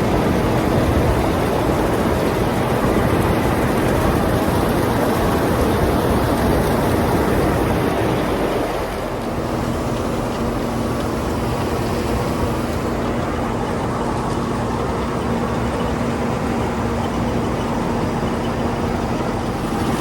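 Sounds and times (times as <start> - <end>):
wind on microphone: 0.0 - 14.7
combine harvester running: 0.0 - 20.0
steady low hum: 0.0 - 20.0.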